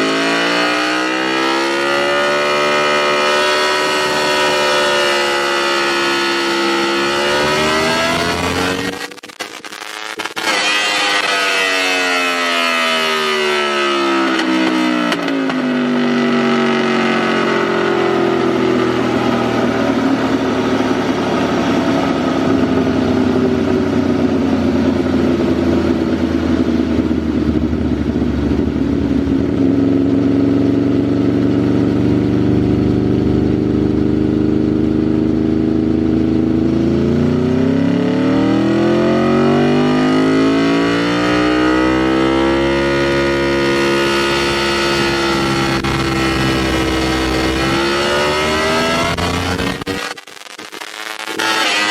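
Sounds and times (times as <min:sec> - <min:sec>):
motorcycle engine revving: 0:00.0 - 0:50.2, 0:51.3 - 0:51.9.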